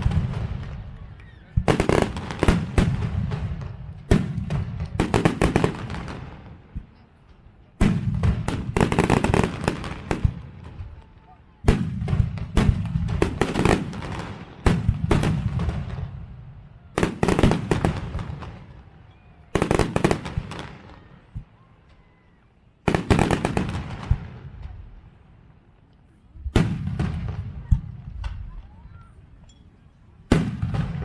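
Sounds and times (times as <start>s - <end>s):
fireworks crackling: 0.0s - 1.0s, 1.6s - 6.9s, 7.8s - 18.9s, 19.6s - 21.1s, 22.9s - 25.0s
firework shells bursting: 1.7s - 3.2s, 7.8s - 10.5s.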